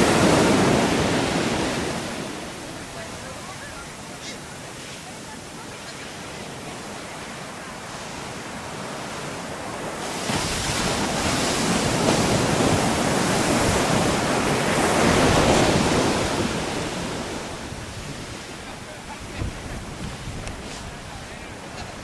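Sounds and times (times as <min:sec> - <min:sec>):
ocean waves crashing: 0:00.0 - 0:22.0.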